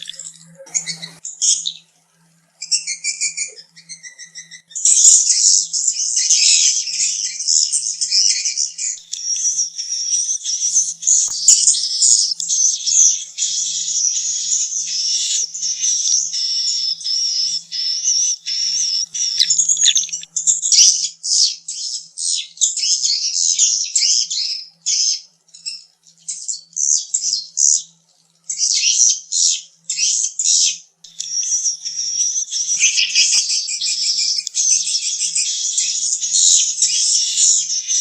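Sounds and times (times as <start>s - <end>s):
swiftlets twittering: 0.0s - 1.2s, 9.1s - 20.3s.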